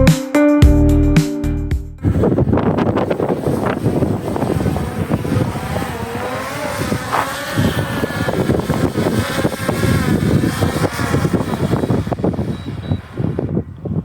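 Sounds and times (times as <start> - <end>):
vehicle engine: 2.0 - 14.0.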